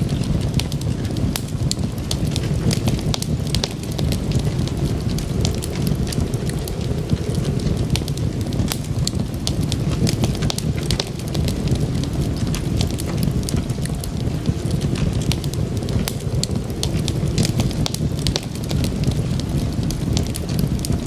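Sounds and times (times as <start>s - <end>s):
low rumble: 0.0s - 21.0s
sharp pops and snaps: 0.0s - 21.0s
wood fire crackling: 0.0s - 21.0s.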